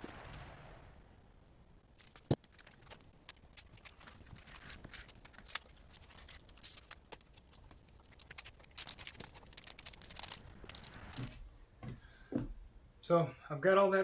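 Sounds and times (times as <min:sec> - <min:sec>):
rustling of materials: 0:01.8 - 0:12.0.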